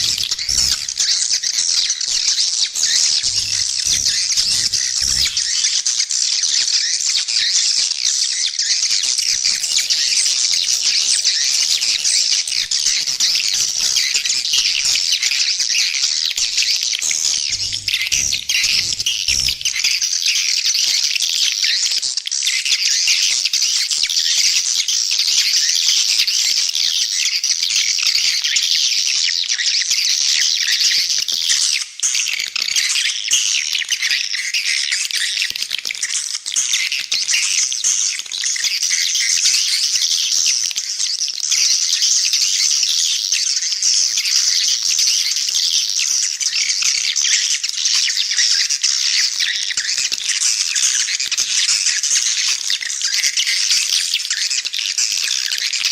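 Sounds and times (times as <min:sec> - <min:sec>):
swiftlets chittering: 0:00.0 - 0:05.7, 0:09.2 - 0:20.1.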